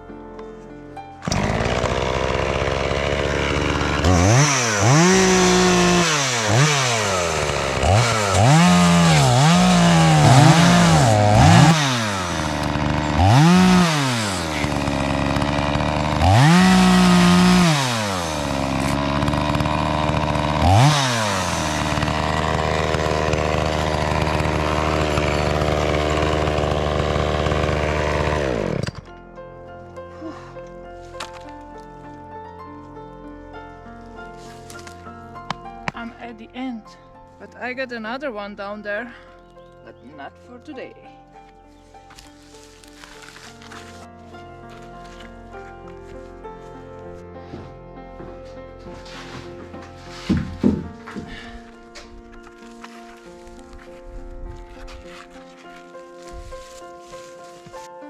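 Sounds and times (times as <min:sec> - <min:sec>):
chainsaw revving: 0:01.2 - 0:29.1, 0:42.9 - 0:44.1.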